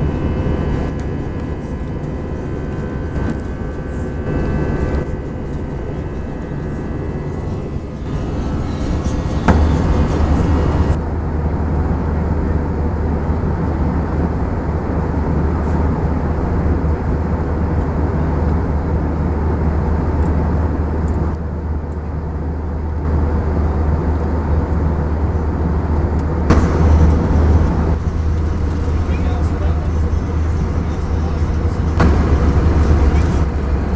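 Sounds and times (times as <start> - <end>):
airliner cabin rumble: 0.0 - 21.4, 23.1 - 33.9
airflow hiss: 8.1 - 11.0, 26.5 - 33.9.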